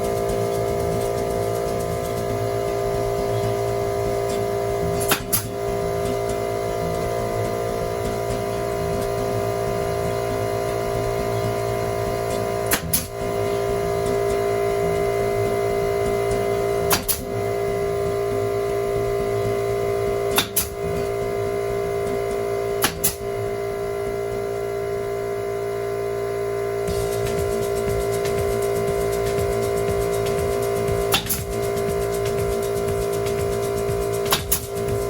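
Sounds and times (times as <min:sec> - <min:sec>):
steady mechanical hum: 0:00.0 - 0:35.0
nail gun firing: 0:05.0 - 0:05.6, 0:12.6 - 0:13.2, 0:16.9 - 0:17.3, 0:20.3 - 0:20.8, 0:22.8 - 0:23.3, 0:31.0 - 0:31.7, 0:34.2 - 0:34.8.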